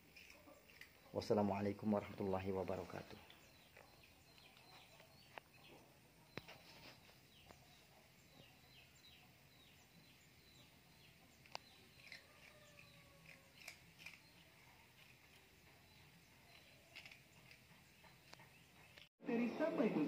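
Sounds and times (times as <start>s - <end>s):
sharp clicks: 11.4s - 14.4s.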